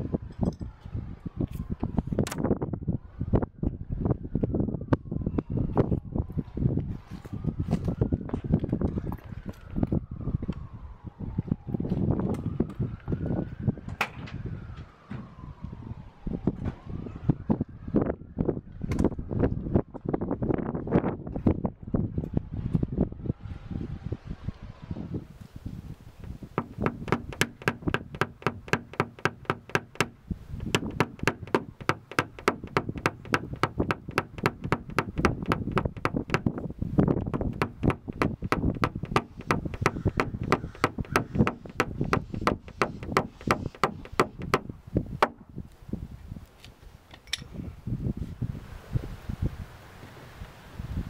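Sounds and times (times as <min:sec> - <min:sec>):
tapping on sheet metal: 0:26.6 - 0:36.6, 0:37.2 - 0:45.4.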